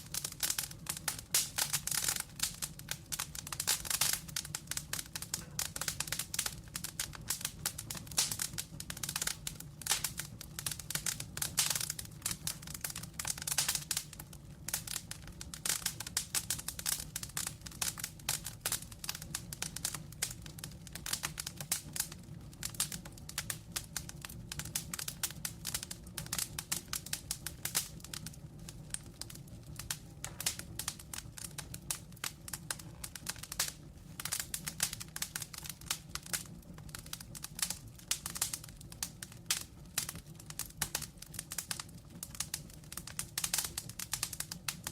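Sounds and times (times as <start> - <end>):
low rumble of flame: 0.0 - 44.9
wood fire crackling: 0.0 - 44.9.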